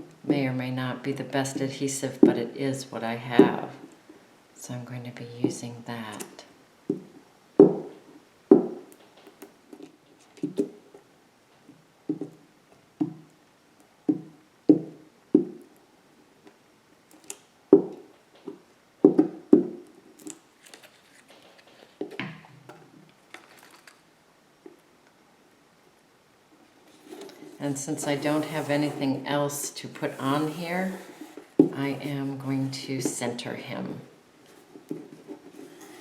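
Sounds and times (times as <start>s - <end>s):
hollow knocks on wooden panel: 6.9s - 7.9s
soft scraping and rubbing: 26.8s - 33.3s, 34.4s - 36.0s.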